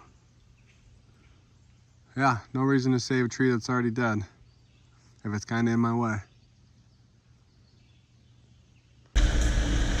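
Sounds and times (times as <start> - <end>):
mini excavator engine and hydraulics: 9.2 - 10.0.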